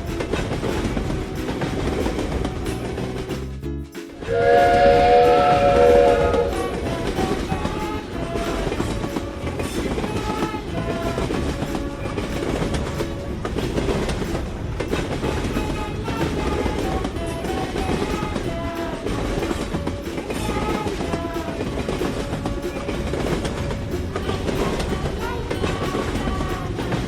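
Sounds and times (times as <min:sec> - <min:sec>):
train rumbling on rails: 0:00.0 - 0:27.0
train horn: 0:04.2 - 0:27.0.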